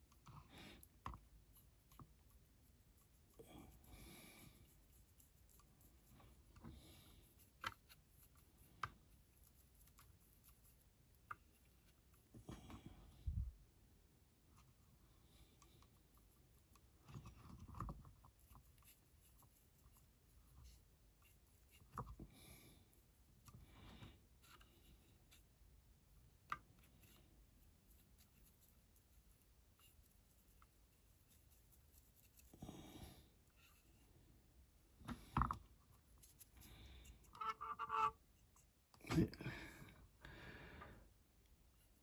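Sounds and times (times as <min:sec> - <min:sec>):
small rubs and taps of handling: 0:00.0 - 0:03.4, 0:04.6 - 0:12.9, 0:15.6 - 0:22.3, 0:22.9 - 0:32.6, 0:33.5 - 0:34.1, 0:35.0 - 0:39.0
paintbrush brushing on metal: 0:01.4 - 0:12.3, 0:18.2 - 0:21.9, 0:24.4 - 0:34.1, 0:35.9 - 0:38.8, 0:41.7 - 0:42.0.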